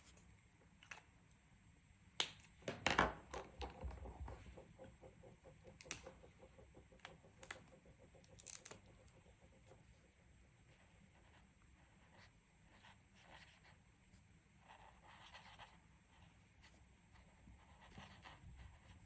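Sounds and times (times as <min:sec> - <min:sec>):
pencil scribbling on paper: 0:04.2 - 0:13.8, 0:14.6 - 0:19.0.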